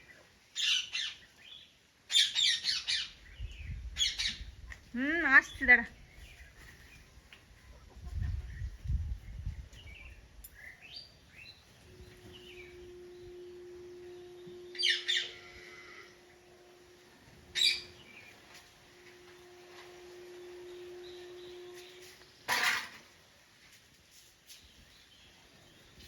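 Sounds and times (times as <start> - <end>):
steady low hum: 2.5 - 24.0
loud harsh bird calls: 10.6 - 22.5.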